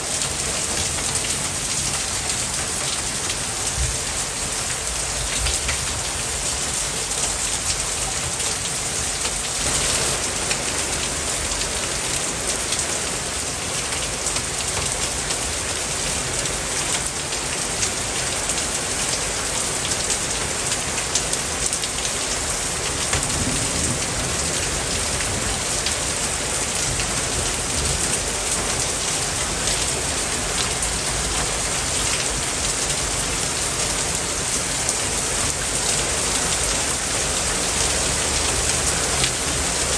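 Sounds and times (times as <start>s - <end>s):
rain-like hiss with patter: 0.0s - 39.9s.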